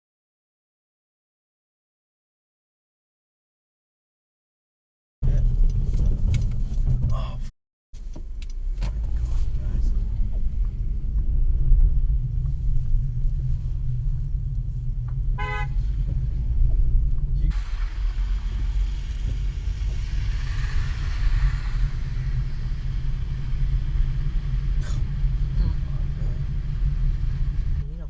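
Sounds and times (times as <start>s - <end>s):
car cabin rumble: 5.2s - 28.0s
car horn toot: 15.4s - 15.9s
hiss: 17.5s - 27.9s.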